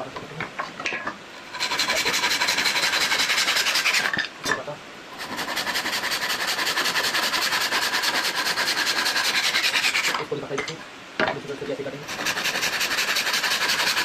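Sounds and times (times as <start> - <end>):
saw cutting wood: 1.4 - 4.2, 5.2 - 10.3, 12.1 - 14.0.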